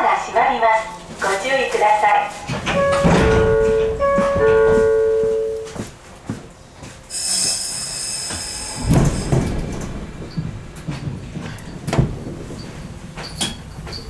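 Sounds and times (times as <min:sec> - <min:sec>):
sliding doors thudding shut: 0:02.4 - 0:05.9, 0:08.2 - 0:14.0
two-note door chime: 0:02.7 - 0:05.8
air hissing: 0:07.1 - 0:09.9.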